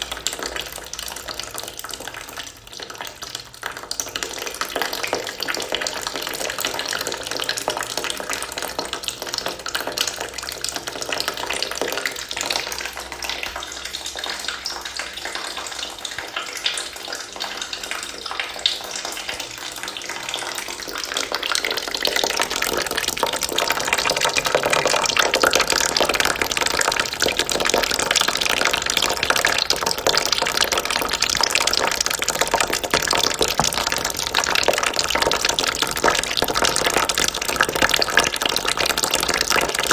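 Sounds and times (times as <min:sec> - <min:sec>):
water trickling into a bucket: 0:00.0 - 0:39.9.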